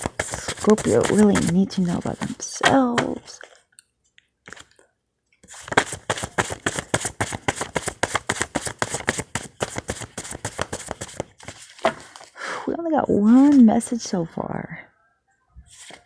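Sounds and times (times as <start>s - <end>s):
cards being shuffled: 0.0s - 3.6s, 5.5s - 12.4s.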